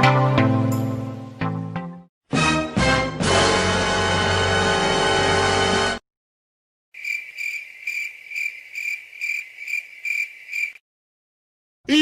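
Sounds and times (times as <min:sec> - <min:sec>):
cricket chirping: 0:07.0 - 0:10.8.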